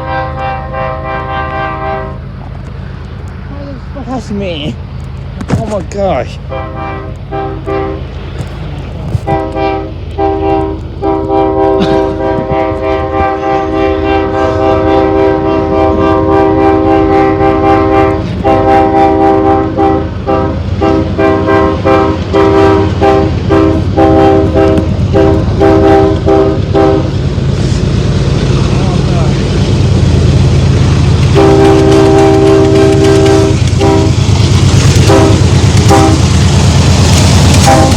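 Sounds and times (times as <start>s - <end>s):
locomotive air horn blasts: 0.0s - 2.3s, 6.5s - 8.1s, 9.2s - 27.2s, 31.3s - 34.3s, 35.0s - 36.3s, 37.6s - 37.9s
freight train rumbling: 0.0s - 37.9s.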